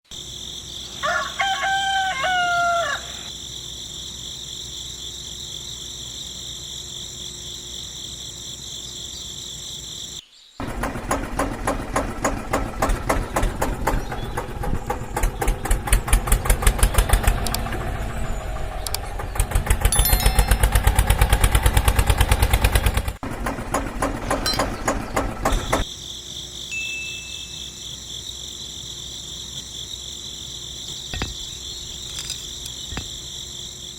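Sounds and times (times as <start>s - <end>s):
rooster crowing: 1.0s - 3.3s
small engine pulsing: 10.6s - 25.9s
high chirring: 19.9s - 21.8s, 26.7s - 27.8s.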